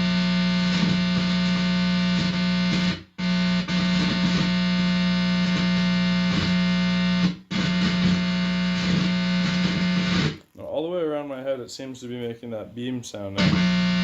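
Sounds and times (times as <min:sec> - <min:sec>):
distorted amplifier buzz: 0:00.0 - 0:10.5, 0:13.4 - 0:14.0.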